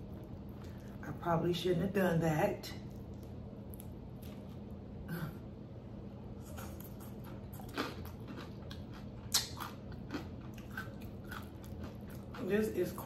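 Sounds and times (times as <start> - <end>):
crunchy chewing: 2.8 - 4.8, 6.4 - 13.0.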